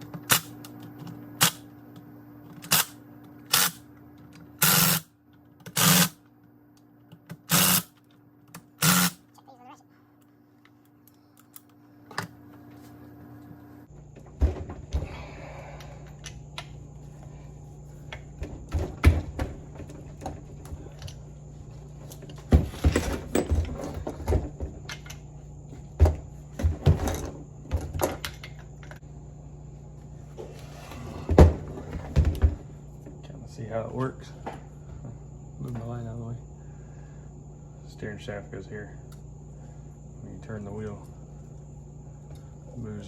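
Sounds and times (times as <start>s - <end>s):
metal parts knocking and clinking: 22.3s - 25.2s.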